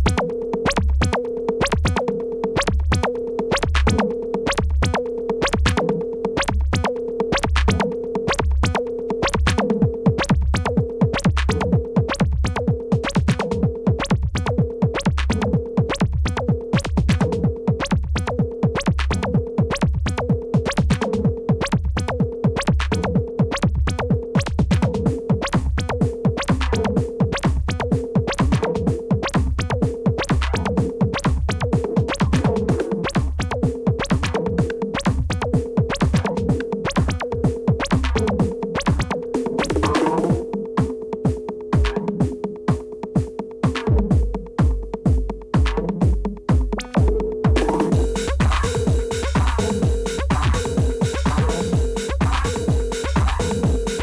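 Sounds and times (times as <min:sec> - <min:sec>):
drum machine percussion: 0:00.0 - 0:54.0
repeating synth pattern: 0:26.8 - 0:54.0
pulsing low bass: 0:47.5 - 0:54.0.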